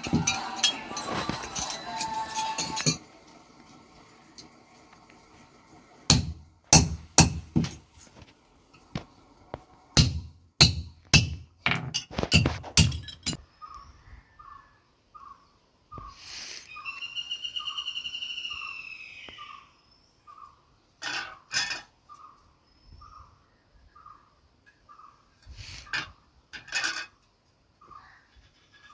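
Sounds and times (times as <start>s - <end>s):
hammer striking anvil: 0.0s - 3.0s, 6.1s - 7.8s, 10.0s - 13.4s.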